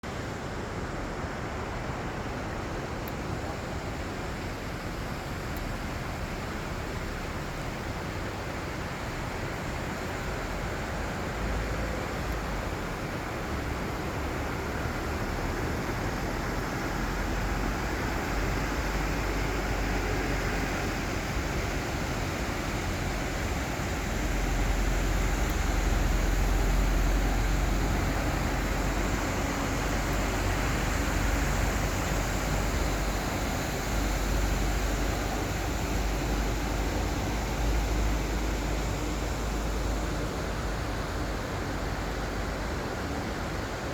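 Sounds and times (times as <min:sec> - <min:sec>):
river water rushing: 0:00.1 - 0:43.9.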